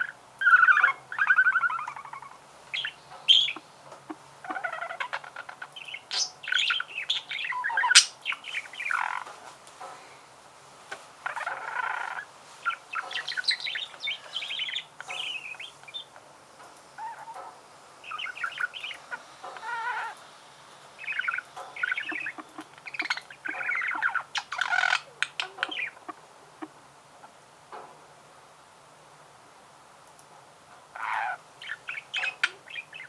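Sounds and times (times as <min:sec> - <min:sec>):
budgerigar warbling: 0:04.4 - 0:09.2, 0:31.0 - 0:33.0.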